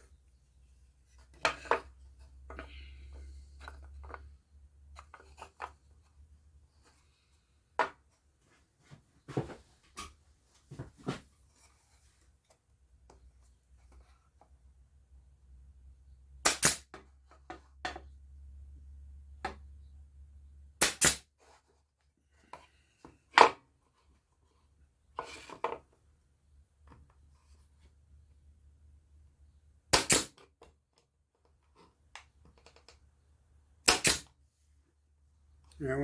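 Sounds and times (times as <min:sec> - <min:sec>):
pneumatic nailer shots: 0:16.4 - 0:16.9, 0:20.8 - 0:21.2, 0:29.9 - 0:30.4, 0:33.8 - 0:34.3.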